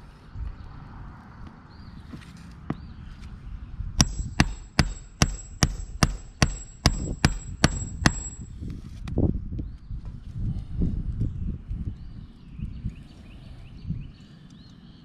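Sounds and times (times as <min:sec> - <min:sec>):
hammer striking roof: 0:04.0 - 0:08.5.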